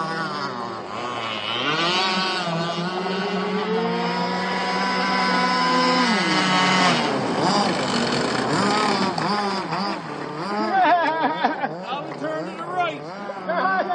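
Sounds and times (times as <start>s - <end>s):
model boat motors running: 0.0s - 13.9s.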